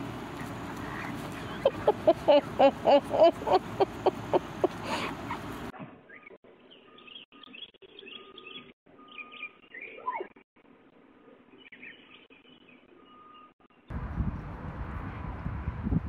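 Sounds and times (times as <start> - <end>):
birds chirping and singing: 3.8 - 10.3, 11.5 - 13.8
wind rushing on a microphone: 13.9 - 16.0.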